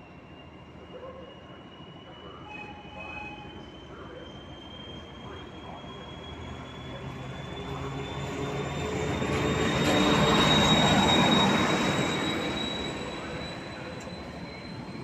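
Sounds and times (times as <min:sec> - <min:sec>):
diesel locomotive passing: 0:00.0 - 0:15.0
train wheels rolling: 0:06.2 - 0:15.0.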